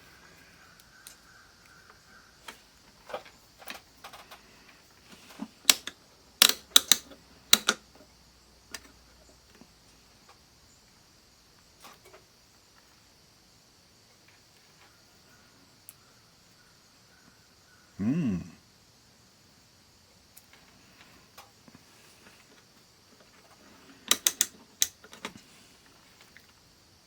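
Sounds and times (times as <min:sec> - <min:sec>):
sharp loud clicks: 0:05.3 - 0:07.9, 0:24.1 - 0:25.0
multimeter handling clicks and taps: 0:05.7 - 0:07.8, 0:24.1 - 0:25.3.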